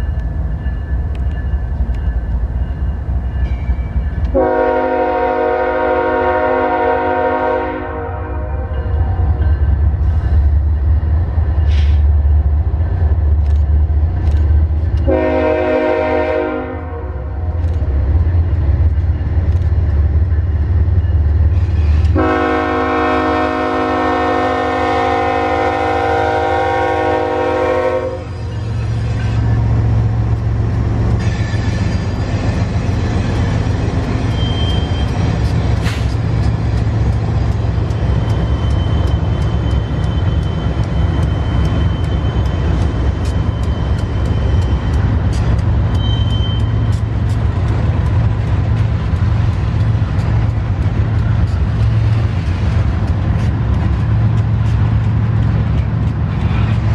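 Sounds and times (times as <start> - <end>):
rattle of passing train cars: 0.0 - 56.9
locomotive horn blasts: 4.3 - 8.8, 15.0 - 17.5, 22.1 - 28.4.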